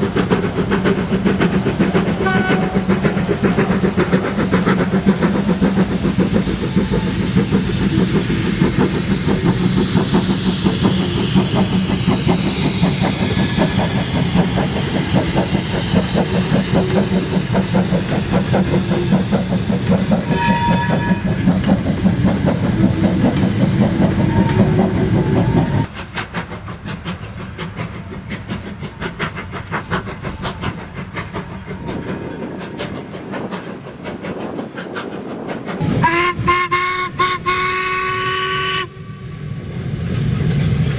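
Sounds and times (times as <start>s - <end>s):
train wheels clattering on rails: 0.0s - 38.6s
steam hissing: 0.0s - 40.9s.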